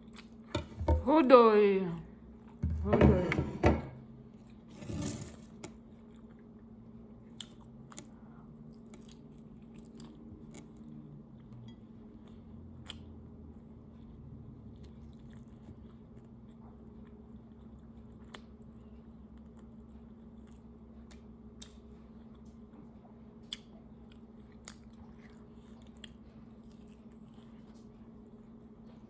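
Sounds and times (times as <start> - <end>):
person chewing food: 5.5 - 22.6, 23.4 - 28.7.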